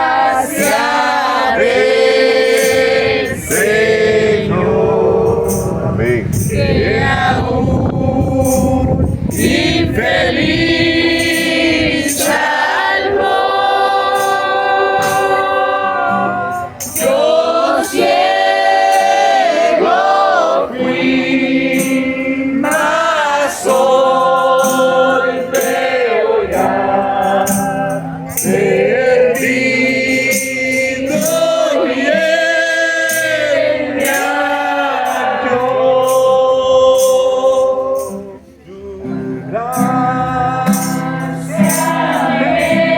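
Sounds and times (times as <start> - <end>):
congregation singing a hymn: 0.0 - 42.9
tambourine shaken: 5.3 - 7.2, 8.2 - 15.7, 16.4 - 20.2, 21.7 - 38.4, 39.7 - 42.9.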